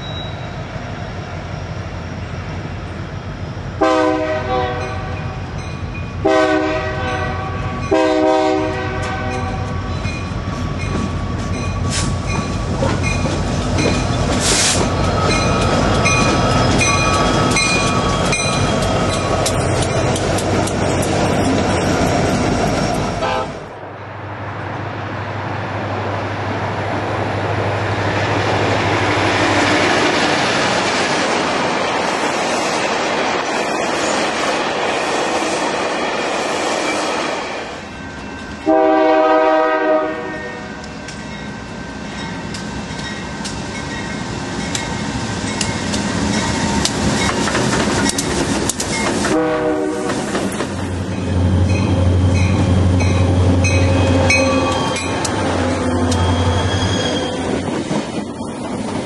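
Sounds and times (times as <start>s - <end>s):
train wheels on rails: 0.0s - 23.7s, 24.6s - 59.0s
locomotive air horn: 3.8s - 5.2s, 6.2s - 9.6s, 23.2s - 23.7s, 38.6s - 40.8s, 49.3s - 50.3s, 53.8s - 57.4s.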